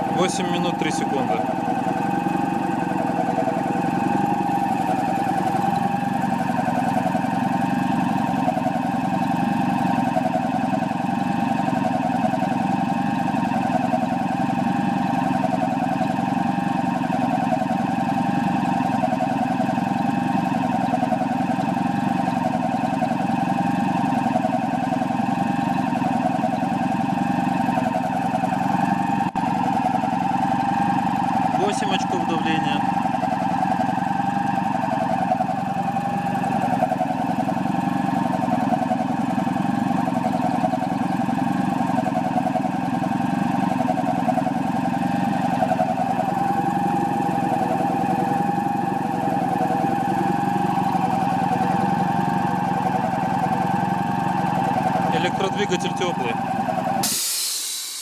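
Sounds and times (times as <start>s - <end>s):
air compressor running: 0.0s - 7.4s, 45.4s - 58.0s.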